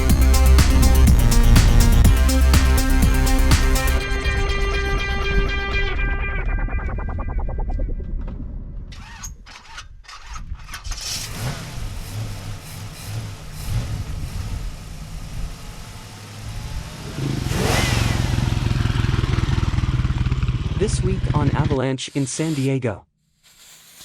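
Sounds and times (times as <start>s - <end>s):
off-road vehicle engine running: 0.0s - 5.0s, 11.0s - 21.8s.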